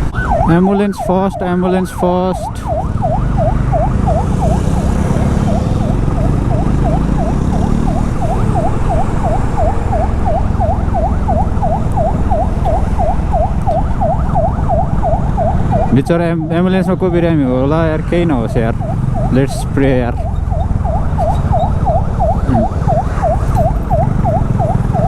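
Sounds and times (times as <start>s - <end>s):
ambulance siren yelp: 0.0s - 25.0s
engine and road rumble: 0.0s - 25.0s.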